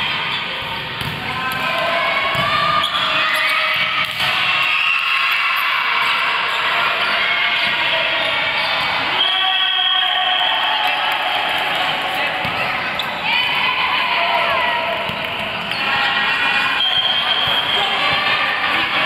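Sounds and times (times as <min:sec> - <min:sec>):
ball bouncing on a court: 0:01.0 - 0:01.6.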